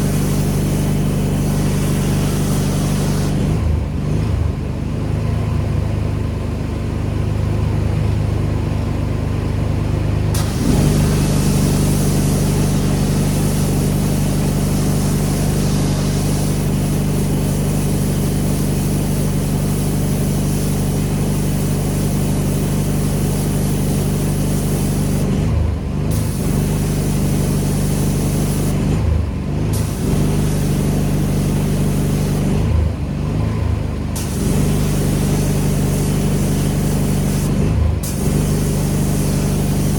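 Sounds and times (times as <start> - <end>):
water spray hissing: 0.0 - 3.6, 10.4 - 25.4, 26.1 - 29.0, 29.7 - 32.7, 34.2 - 39.9
pressure washer engine running: 0.0 - 4.6, 10.2 - 39.9.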